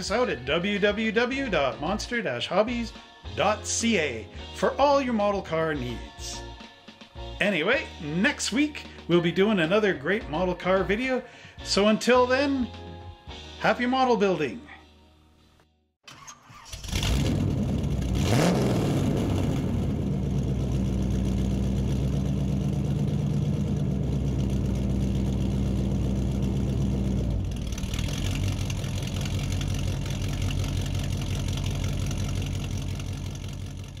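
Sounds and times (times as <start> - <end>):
car engine starting and idling: 16.0 - 34.0.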